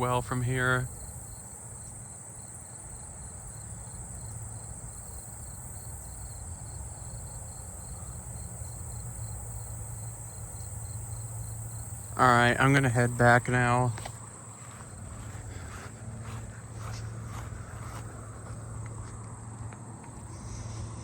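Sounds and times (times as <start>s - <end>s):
high-pitched insect trill: 0.0s - 15.5s
crickets chirping: 0.0s - 21.0s
low steady hum: 0.0s - 21.0s.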